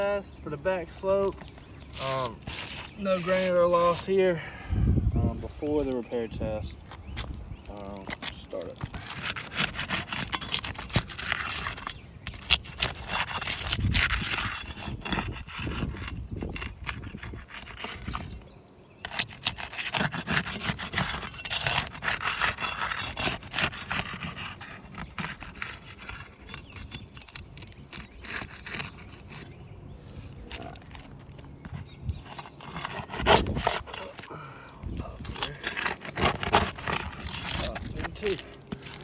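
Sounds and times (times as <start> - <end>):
scraping roof shingles: 7.7 - 18.4, 19.0 - 39.0.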